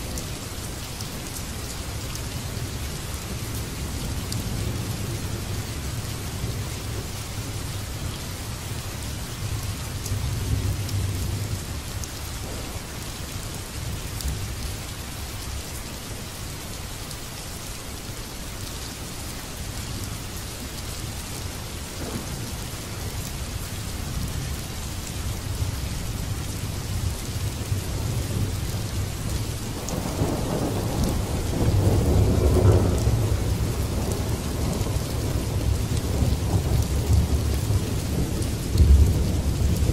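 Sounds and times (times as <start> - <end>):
steady rain: 0.0 - 39.9
thunder rumbling: 12.4 - 14.5, 21.9 - 24.6, 29.6 - 39.9.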